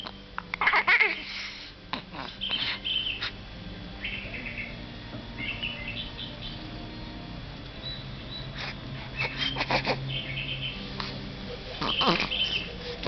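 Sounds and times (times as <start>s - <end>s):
small birds chirping: 2.2s - 3.4s, 4.0s - 4.8s, 5.4s - 13.0s.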